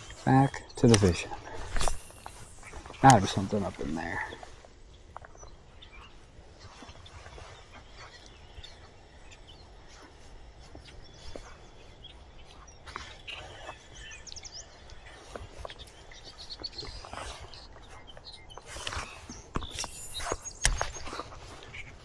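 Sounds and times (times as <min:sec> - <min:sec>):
small clicks: 0:00.8 - 0:01.2, 0:01.8 - 0:03.6, 0:19.7 - 0:21.2
bird chirps: 0:19.7 - 0:21.1.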